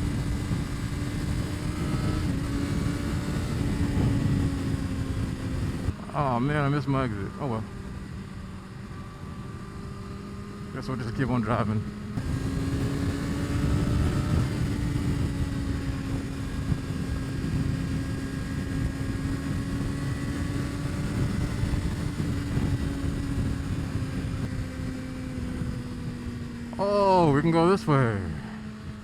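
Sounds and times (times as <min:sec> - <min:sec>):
wind rush: 0:00.0 - 0:06.4, 0:12.1 - 0:27.4
motorcycle engine cruising: 0:00.0 - 0:29.0.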